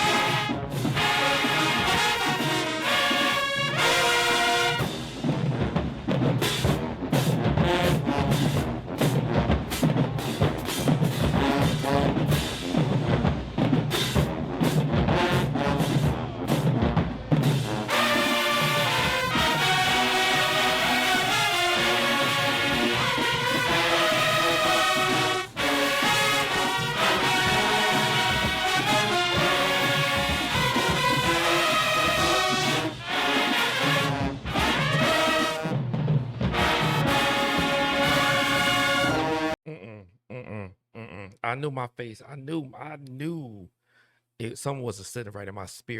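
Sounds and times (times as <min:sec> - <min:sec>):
brass section chords: 0:00.0 - 0:39.6
drumline beating: 0:00.0 - 0:39.6.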